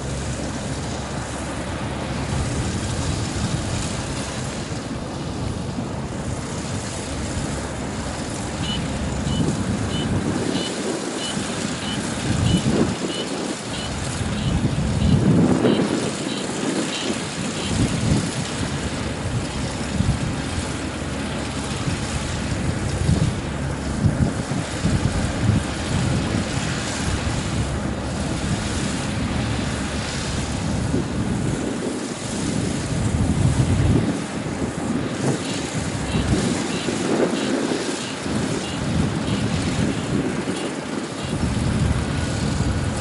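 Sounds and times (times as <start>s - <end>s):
combine harvester running: 0.0s - 43.0s
wind buffeting microphone: 0.0s - 43.0s.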